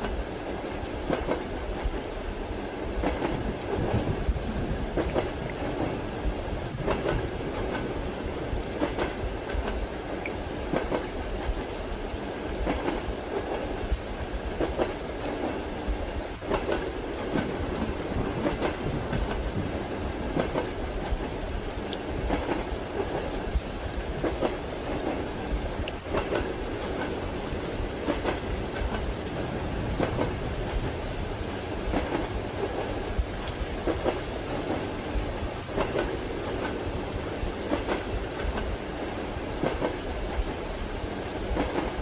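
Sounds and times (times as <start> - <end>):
train wheels clicking over rail joints: 0.0 - 2.1, 6.8 - 8.0, 8.7 - 11.7, 12.6 - 13.7, 16.4 - 21.3, 22.2 - 23.6, 24.2 - 31.0, 31.8 - 36.9, 37.6 - 39.0, 39.6 - 40.6, 41.5 - 42.0
low train rumble: 0.0 - 42.0
rain hiss: 0.0 - 42.0.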